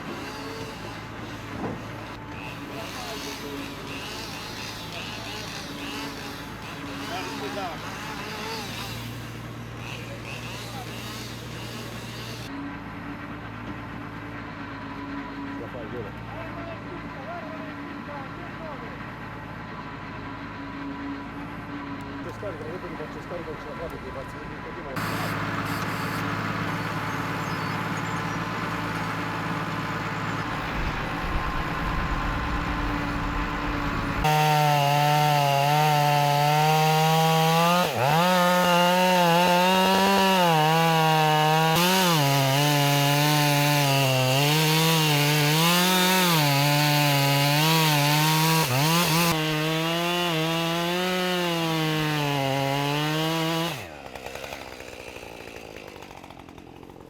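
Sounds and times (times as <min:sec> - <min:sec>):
chainsaw cutting wood: 0:00.0 - 0:12.6, 0:25.0 - 0:57.0.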